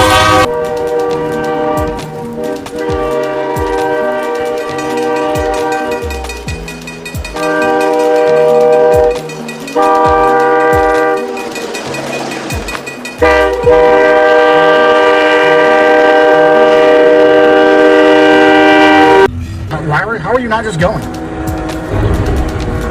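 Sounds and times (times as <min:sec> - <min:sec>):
train air horn blasts: 0:00.0 - 0:06.4, 0:07.3 - 0:11.5, 0:13.2 - 0:19.3
train rumble: 0:00.0 - 0:22.9.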